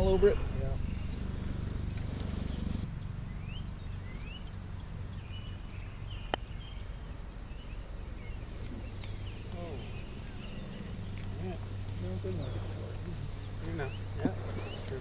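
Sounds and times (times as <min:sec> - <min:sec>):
birds chirping and whistling: 0:00.0 - 0:15.0
low outdoor rumble: 0:00.0 - 0:15.0.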